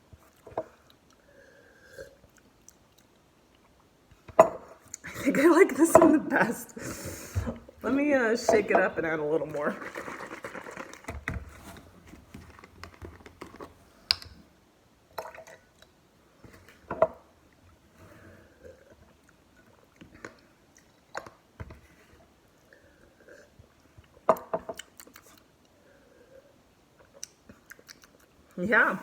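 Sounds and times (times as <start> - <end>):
cups and carton knocking: 5.8 - 6.2.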